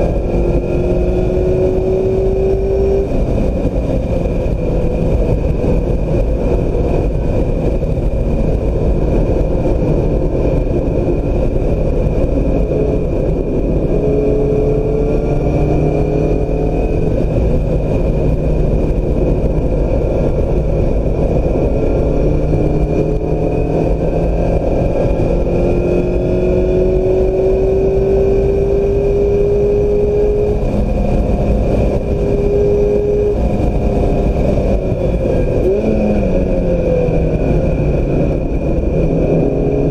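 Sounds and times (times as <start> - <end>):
car engine at track pace: 0.0 - 39.9
wind noise: 0.0 - 39.9.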